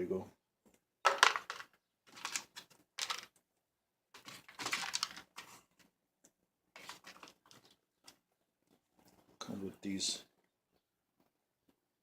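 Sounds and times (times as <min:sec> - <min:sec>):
packaging rustling: 0:01.1 - 0:03.4, 0:04.2 - 0:05.9, 0:06.8 - 0:08.2.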